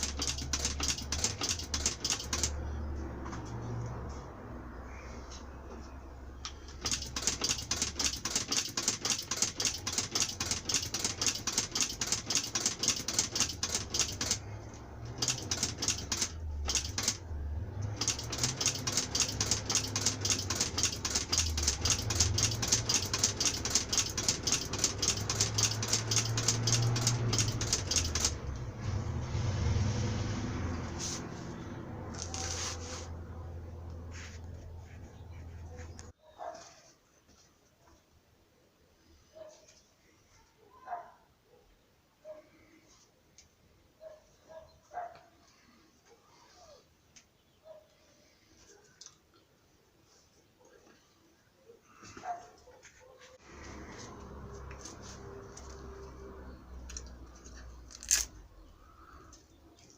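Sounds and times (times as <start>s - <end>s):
sewing machine stitching: 0.0s - 2.6s, 6.7s - 28.6s.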